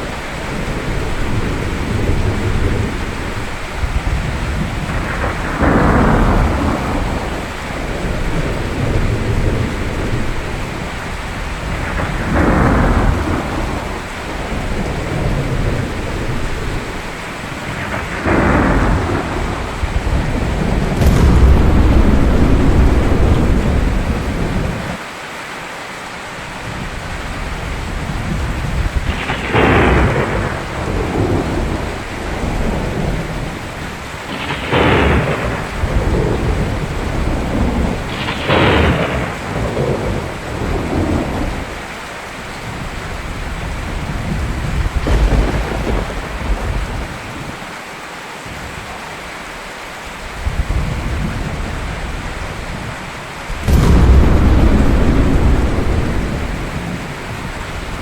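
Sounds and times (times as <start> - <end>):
steady rain: 0.0 - 58.0
thunder cracks and rumbles: 4.4 - 10.5, 17.8 - 25.0, 44.9 - 47.3, 53.5 - 58.0.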